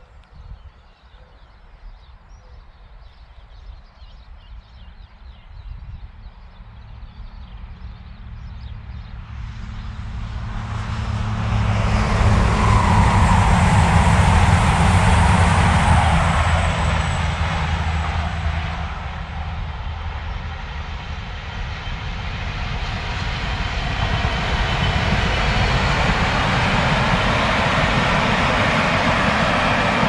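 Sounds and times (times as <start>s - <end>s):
diesel train engine rumble: 6.1s - 30.0s
low rumble: 7.4s - 30.0s
train wheels rushing on rails: 10.0s - 30.0s.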